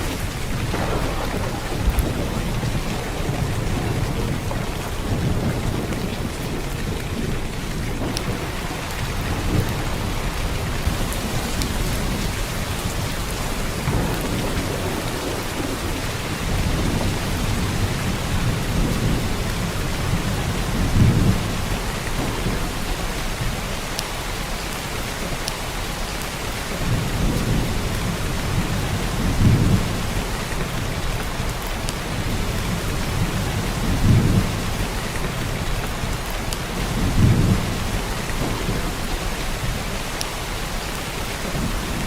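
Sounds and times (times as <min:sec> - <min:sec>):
heavy rain downpour: 0:00.0 - 0:42.0
low rumbles: 0:00.2 - 0:10.0.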